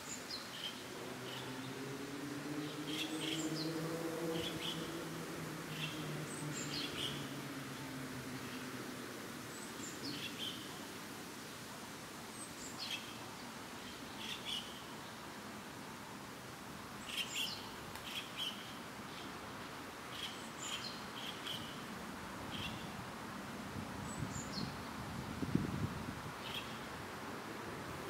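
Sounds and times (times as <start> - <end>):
low background noise: 0.0 - 28.0
small birds chirping: 26.4 - 26.9.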